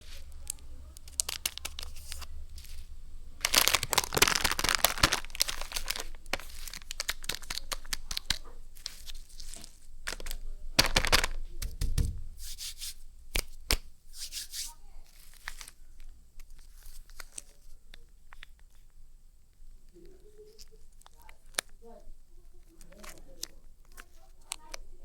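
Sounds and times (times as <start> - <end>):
wrapper tearing: 0.0 - 11.4, 12.5 - 15.8
wrapper rustling: 0.0 - 17.8.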